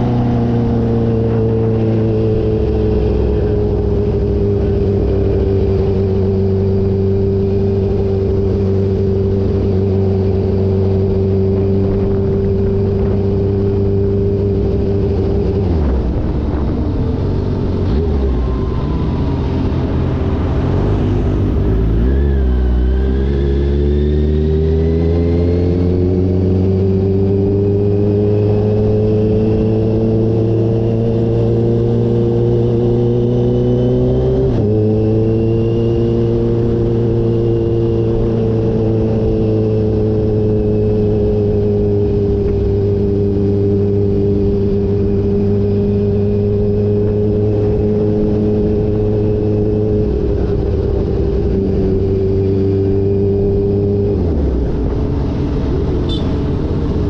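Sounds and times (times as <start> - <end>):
motorcycle engine under load: 34.2 - 57.0.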